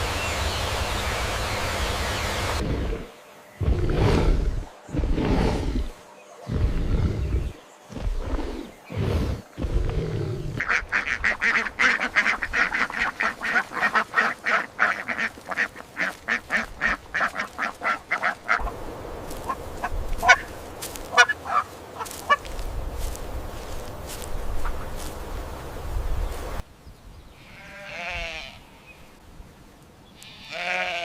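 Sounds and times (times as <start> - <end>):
poultry quacking calls: 10.6 - 23.1.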